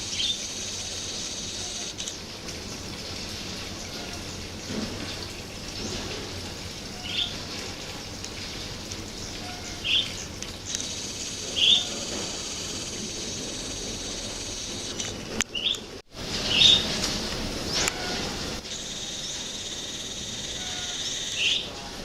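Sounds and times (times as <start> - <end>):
birds chirping: 0.0 - 7.4, 9.1 - 17.0, 17.6 - 21.9
outdoor background noise: 0.0 - 22.0
steady high-pitched tone: 18.7 - 21.7.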